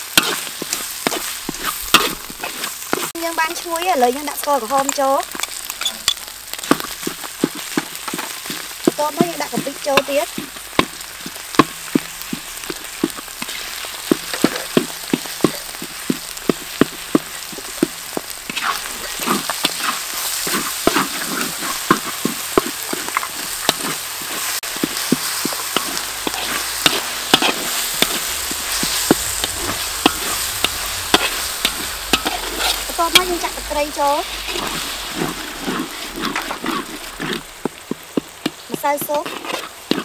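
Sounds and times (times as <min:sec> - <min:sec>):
paste frying in oil: 0:00.0 - 0:40.0
metal ladle scraping and knocking pan: 0:13.4 - 0:15.8, 0:24.8 - 0:38.3.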